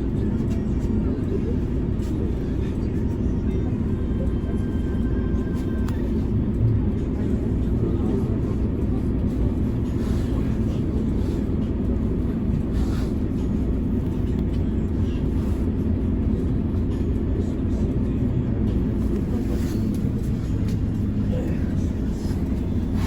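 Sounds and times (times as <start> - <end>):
bus engine and road drone: 0.0 - 23.0.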